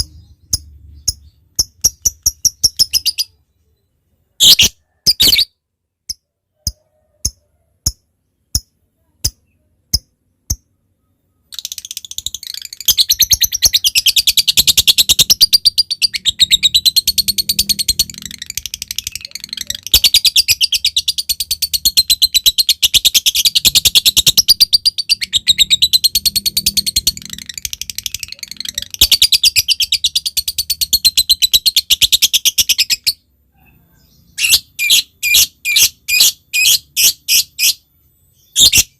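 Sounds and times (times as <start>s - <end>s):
lovebird chattering trill: 0.0s - 3.4s, 11.4s - 33.2s, 38.4s - 38.9s
lovebird chipping: 0.0s - 3.4s, 11.4s - 33.2s.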